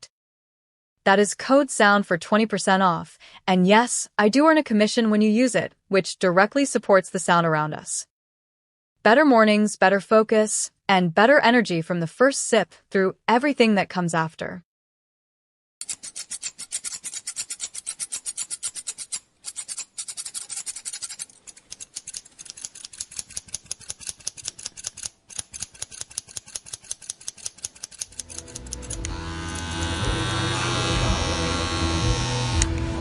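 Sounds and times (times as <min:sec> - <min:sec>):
scissors snipping hair: 0:15.8 - 0:30.0
electric hair clippers buzzing: 0:28.0 - 0:33.0.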